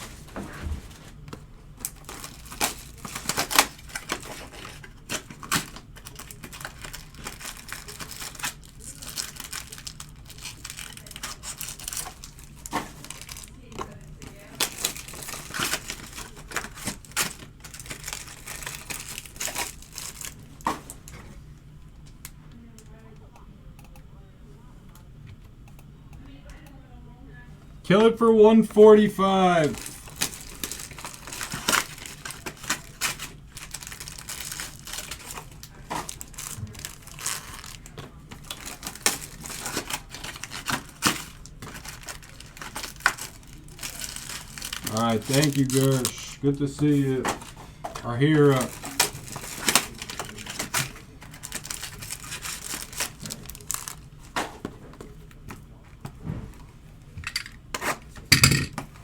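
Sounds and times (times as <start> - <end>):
card pack wrappers crinkling: 1.8 - 21.2, 29.0 - 56.0.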